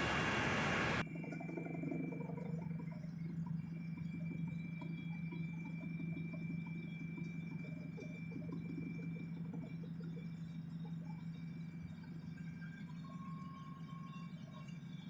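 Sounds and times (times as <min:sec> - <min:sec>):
high whine: 0:00.0 - 0:01.2
helicopter engine hum: 0:00.0 - 0:11.0.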